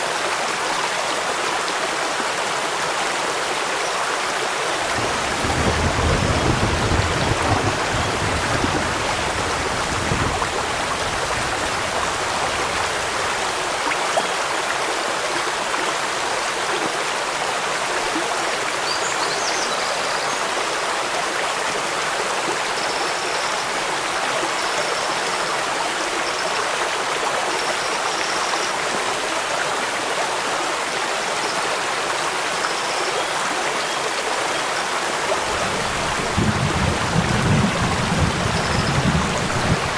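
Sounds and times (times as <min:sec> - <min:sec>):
stream rushing: 0:00.0 - 0:24.6, 0:28.8 - 0:39.9
rain falling: 0:04.5 - 0:14.2, 0:34.8 - 0:39.9.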